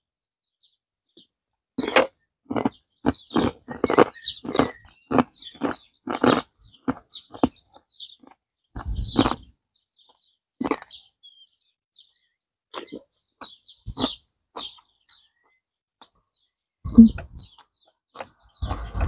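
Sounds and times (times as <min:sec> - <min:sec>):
person chewing crunchy food: 0:01.8 - 0:09.6, 0:10.6 - 0:11.0, 0:12.7 - 0:14.8, 0:16.9 - 0:19.0
faint bird chirps: 0:10.9 - 0:19.0.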